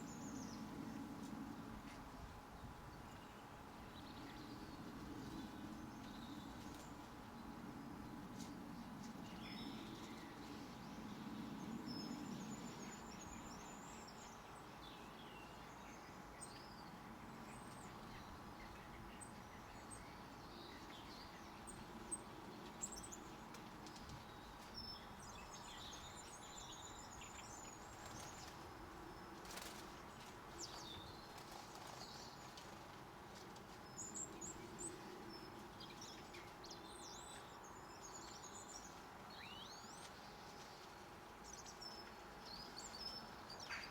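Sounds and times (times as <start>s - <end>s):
low steady hum: 0.0s - 43.9s
small birds chirping: 2.6s - 43.9s.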